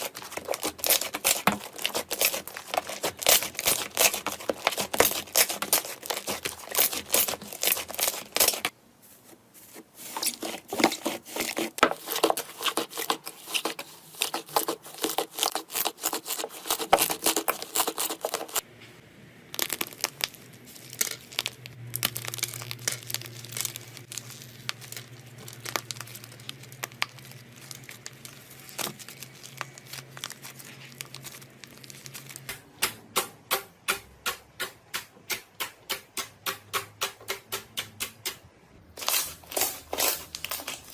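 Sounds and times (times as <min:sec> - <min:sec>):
slime crackling and popping: 0:00.0 - 0:08.7, 0:19.4 - 0:32.5.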